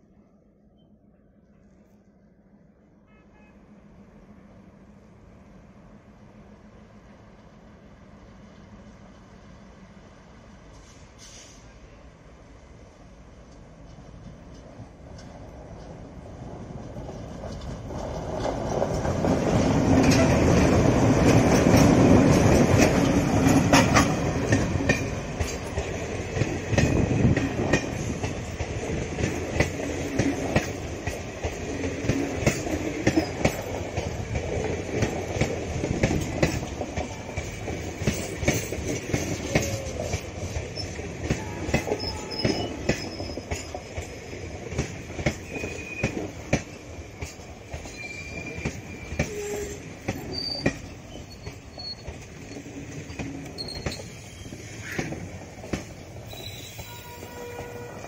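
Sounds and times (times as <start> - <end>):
train coaches rolling: 5.8 - 58.0
wheels clicking over rail joints: 13.4 - 57.9.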